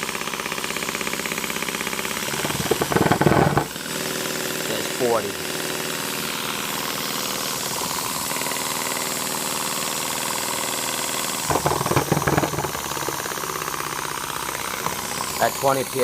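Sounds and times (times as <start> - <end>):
irregular knocking: 2.2 - 3.8, 11.5 - 13.6.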